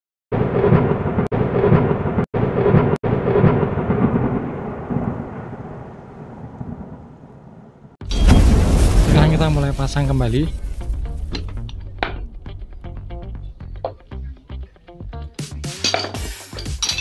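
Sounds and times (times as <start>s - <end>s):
pulsing thunder-like rumble: 0.4s - 13.9s.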